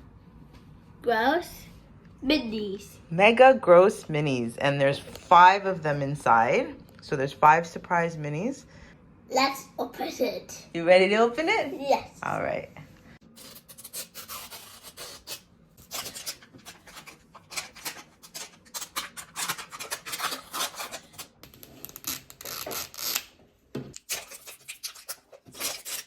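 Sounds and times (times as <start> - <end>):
packaging rustling and tearing: 13.4 - 23.2.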